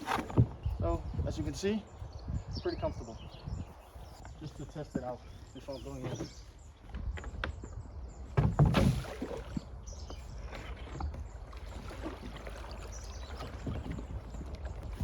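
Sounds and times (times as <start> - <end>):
water and handling noises: 0.0 - 0.6, 8.3 - 15.0
kayak knock with splash: 8.3 - 15.0.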